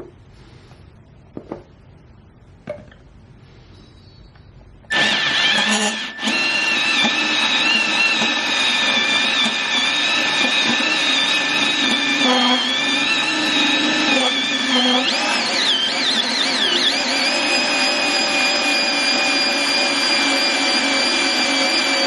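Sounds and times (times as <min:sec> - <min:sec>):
band saw whining: 0:04.9 - 0:22.0.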